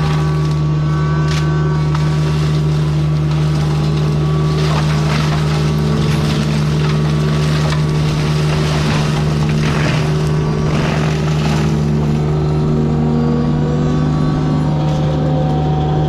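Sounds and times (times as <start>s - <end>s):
brush and wood crackling: 0.0s - 12.6s
heavy machine engine running: 0.0s - 16.0s.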